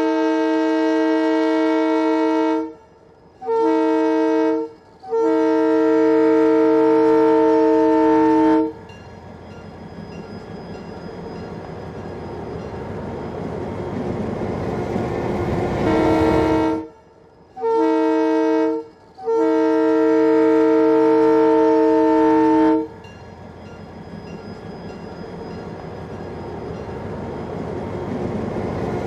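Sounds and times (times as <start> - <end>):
multi-chime air horn: 0.0 - 8.8, 15.8 - 22.9
locomotive rumbling: 7.4 - 16.8, 21.1 - 29.0.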